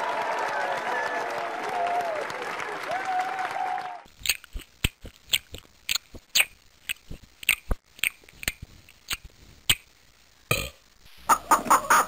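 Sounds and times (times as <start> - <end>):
person chewing crunchy food: 4.1 - 9.8.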